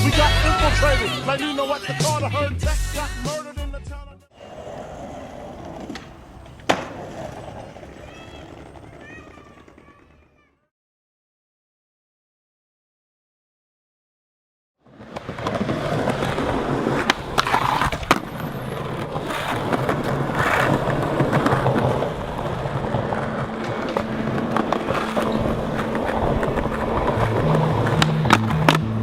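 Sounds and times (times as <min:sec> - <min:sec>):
skateboard wheels rolling on concrete: 0:04.3 - 0:10.6, 0:14.8 - 0:29.0
skateboard clacks: 0:04.4 - 0:10.4, 0:14.9 - 0:29.0.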